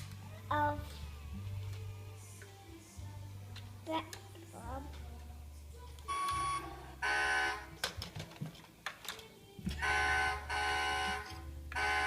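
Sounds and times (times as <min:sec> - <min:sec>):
toy beeping tones: 0:06.1 - 0:07.6.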